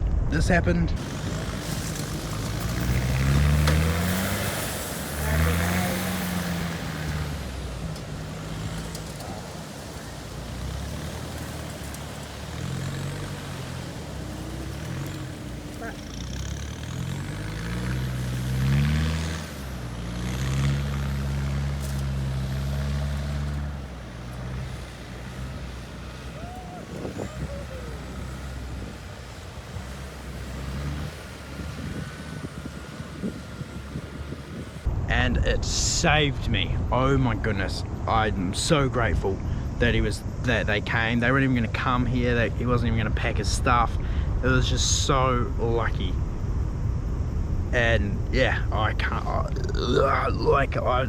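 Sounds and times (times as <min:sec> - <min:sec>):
surf: 0:00.0 - 0:46.1
wind: 0:00.0 - 0:51.0
vehicle engine revving under load: 0:01.0 - 0:35.0.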